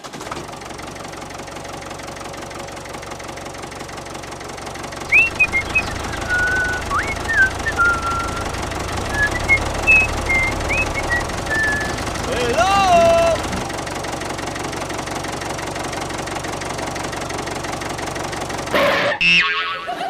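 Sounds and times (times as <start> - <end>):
toy tractor motor rattling: 0.0 - 18.8
thin whistling chirps: 5.1 - 12.1.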